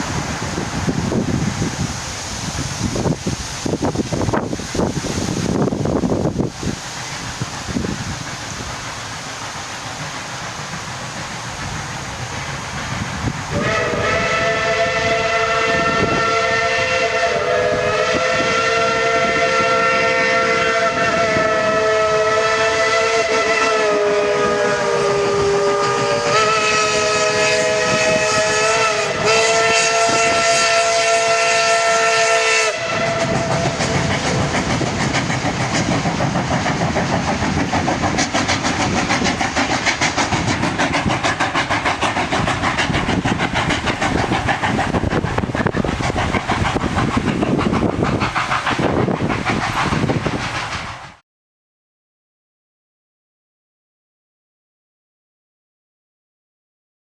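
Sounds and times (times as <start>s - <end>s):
train running noise: 0.0s - 51.2s
steam locomotive chime whistle: 13.5s - 34.4s.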